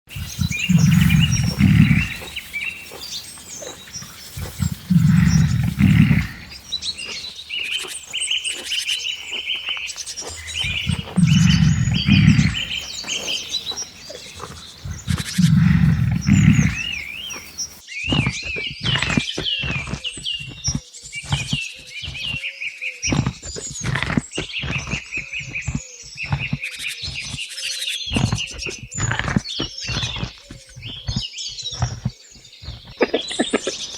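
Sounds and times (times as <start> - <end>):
birds chirping and twittering: 0.0 - 17.8, 31.7 - 33.9
large animal roaring: 0.1 - 17.8.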